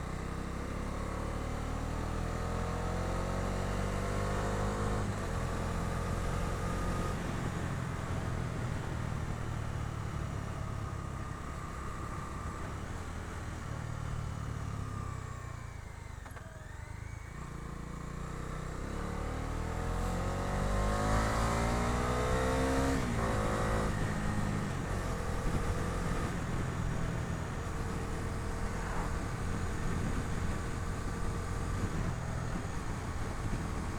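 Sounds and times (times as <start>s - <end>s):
motorcycle engine accelerating: 15.8s - 33.9s.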